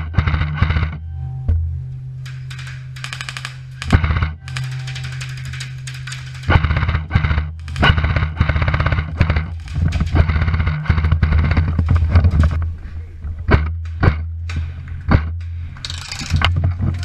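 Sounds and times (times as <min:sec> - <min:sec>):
steady low hum: 0:00.0 - 0:17.0
airsoft guns firing bursts: 0:02.3 - 0:12.5.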